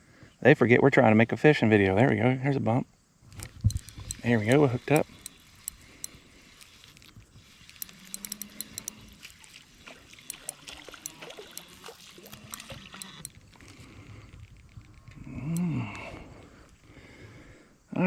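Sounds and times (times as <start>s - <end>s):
light clicks and ticks: 3.3s - 16.8s
fish splashing at water surface: 7.9s - 14.0s.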